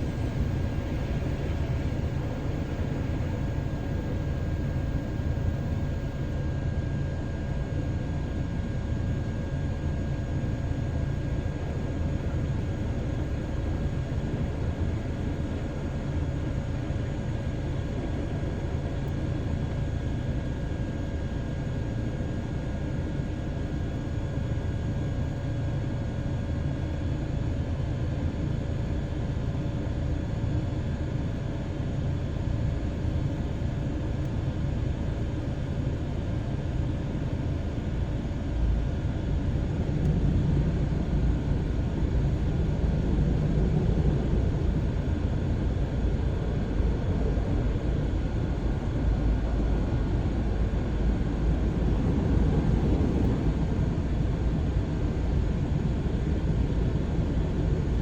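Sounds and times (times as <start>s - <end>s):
faint steady tones: 0.0s - 18.3s.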